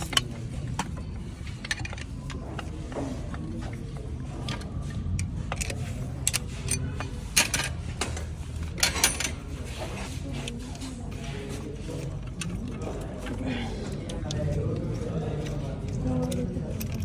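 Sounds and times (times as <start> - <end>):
metal tools clinking: 0.0 - 2.7, 5.5 - 9.9.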